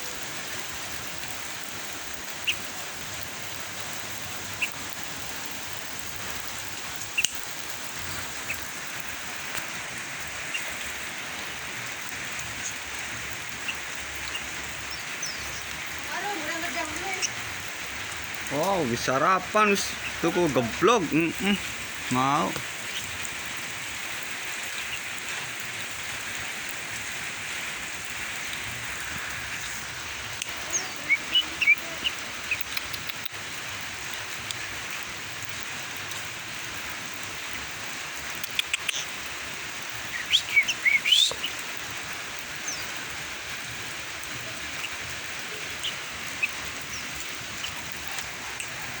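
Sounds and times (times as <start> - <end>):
steady hiss: 0.0 - 49.0
bulbul chirping: 30.7 - 32.9, 40.1 - 41.6.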